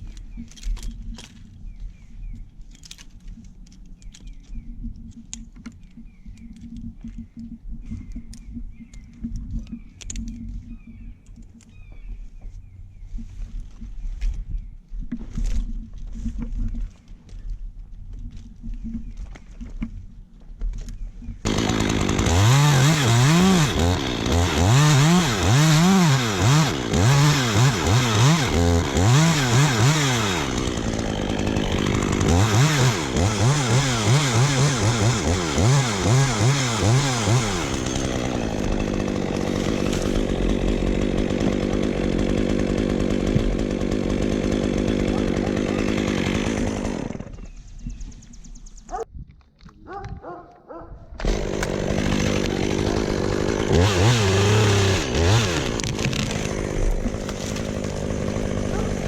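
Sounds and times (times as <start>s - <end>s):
chainsaw revving: 21.4s - 47.6s, 51.2s - 59.0s.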